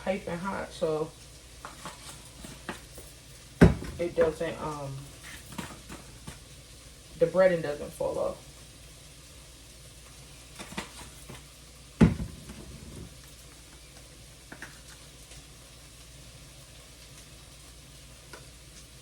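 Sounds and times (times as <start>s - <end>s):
sauce sizzling in a pan: 0.0s - 19.0s
hard object knocking on counter: 3.6s - 4.3s, 12.0s - 13.1s.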